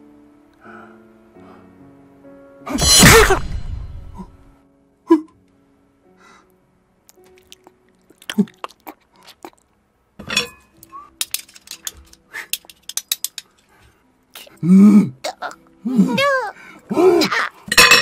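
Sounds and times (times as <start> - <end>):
wet chewing: 7.1 - 9.8.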